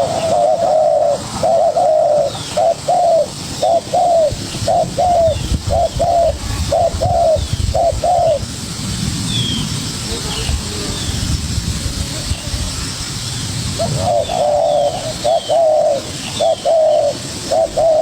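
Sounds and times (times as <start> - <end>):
doves cooing: 0.0 - 18.0
small birds chirping: 0.0 - 18.0.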